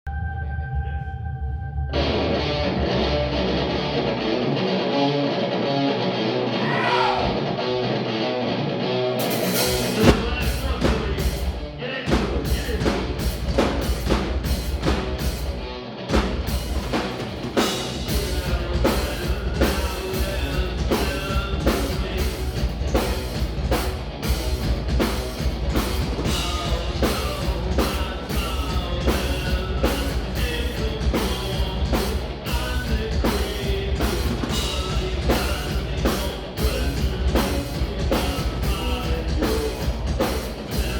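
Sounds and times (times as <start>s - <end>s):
bass guitar: 0.0s - 40.9s
distorted electric guitar: 0.1s - 40.9s
drum kit: 9.2s - 40.9s.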